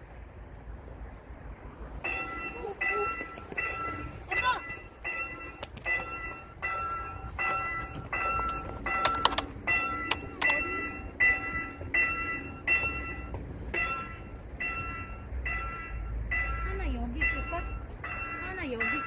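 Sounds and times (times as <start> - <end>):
low rumble: 0.0 - 18.5
level crossing bell dinging: 2.0 - 19.0
sharp clicks: 8.5 - 10.7.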